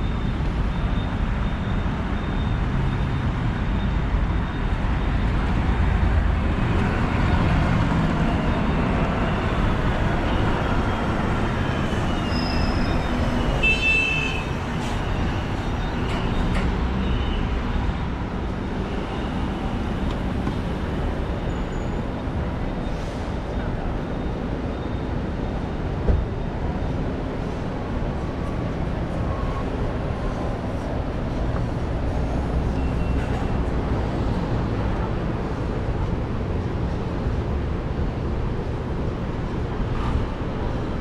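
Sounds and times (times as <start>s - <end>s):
rumble of passing traffic: 0.0s - 41.0s.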